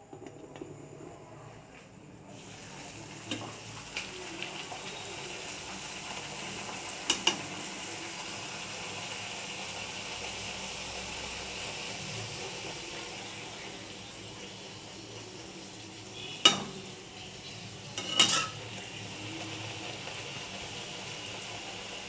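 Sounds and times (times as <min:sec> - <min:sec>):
food sizzling in hot oil: 0:02.3 - 0:22.0
utensil tapping a pan: 0:07.1 - 0:07.4, 0:16.4 - 0:17.0, 0:18.0 - 0:18.7.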